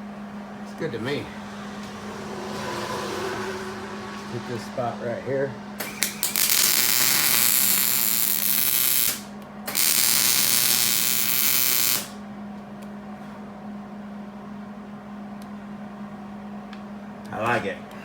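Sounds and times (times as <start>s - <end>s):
welder arc crackling and sizzling: 5.9s - 12.2s.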